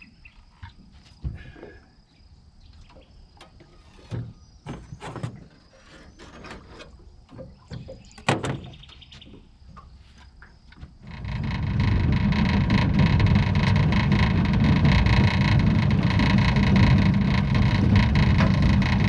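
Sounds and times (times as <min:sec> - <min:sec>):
gear clattering in aluminium boat: 0:02.6 - 0:19.0
short rattle: 0:09.8 - 0:19.0.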